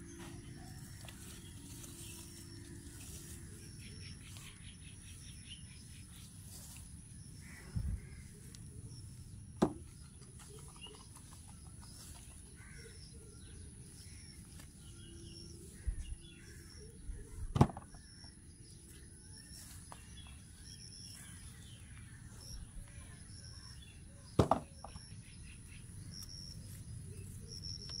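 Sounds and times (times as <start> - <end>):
bird chirping: 0.0 - 28.0
sharp thumps: 24.4 - 25.0.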